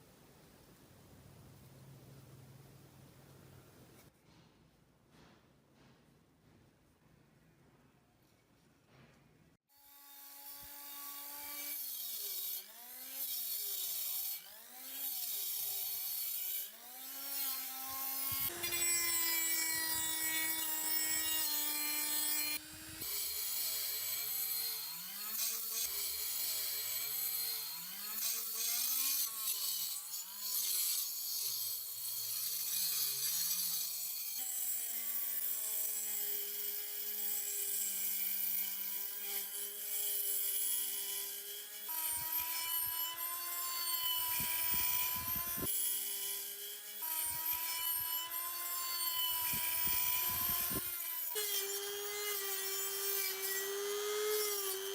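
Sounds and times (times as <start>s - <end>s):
power tool grinding metal: 9.7s - 54.9s.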